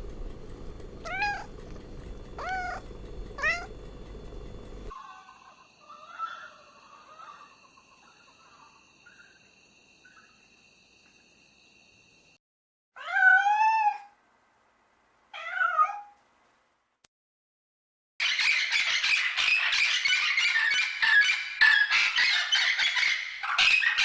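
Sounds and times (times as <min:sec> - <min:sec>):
cat meowing: 0:01.0 - 0:01.5, 0:02.4 - 0:02.8, 0:03.4 - 0:03.7, 0:13.0 - 0:14.1, 0:15.4 - 0:16.2.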